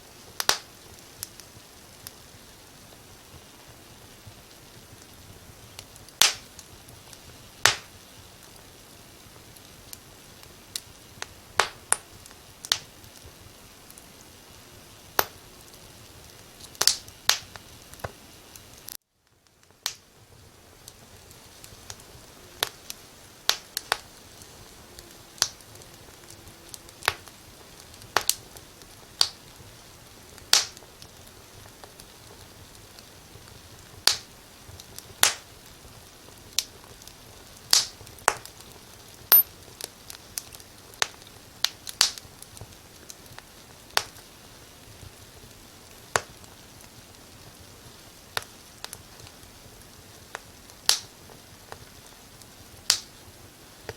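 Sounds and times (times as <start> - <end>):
steady low hiss: 0.0 - 53.9
wood fire crackling: 0.0 - 53.9.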